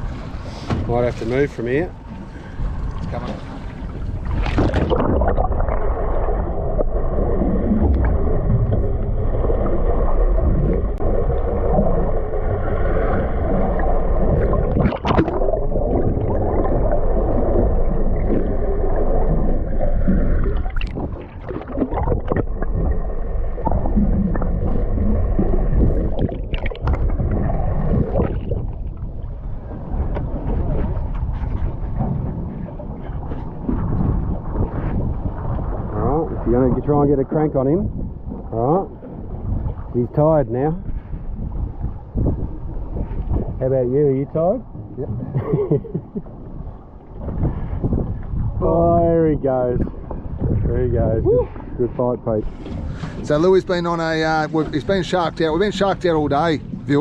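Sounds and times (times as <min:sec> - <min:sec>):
low steady hum: 0:00.0 - 0:57.0
water sloshing and gurgling: 0:00.0 - 0:57.0
knocks on boat: 0:00.6 - 0:01.0.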